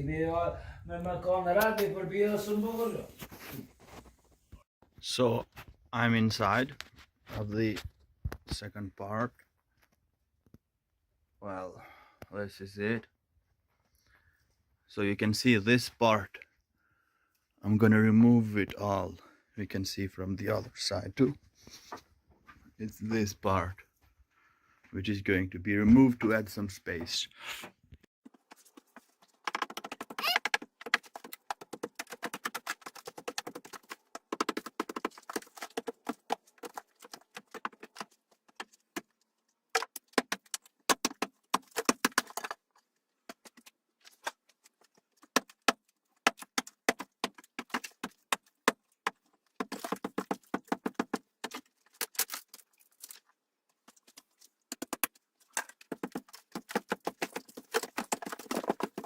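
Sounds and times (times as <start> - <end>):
hard objects clattering: 28.2 - 53.2, 53.8 - 59.0.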